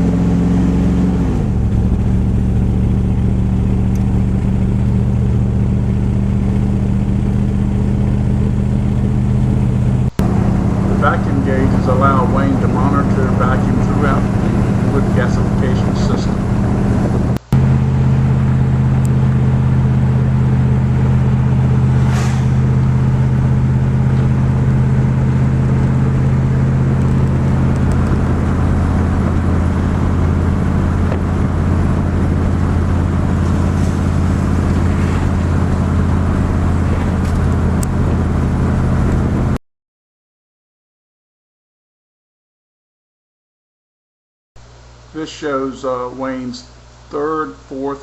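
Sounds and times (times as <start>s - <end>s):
truck engine droning: 0.0s - 39.6s.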